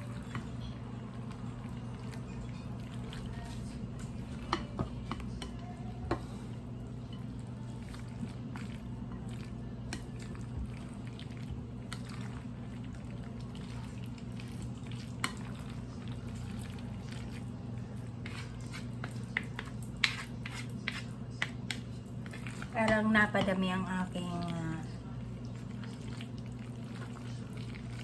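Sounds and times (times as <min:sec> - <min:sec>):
salad squishing while stirred: 0:00.0 - 0:28.0.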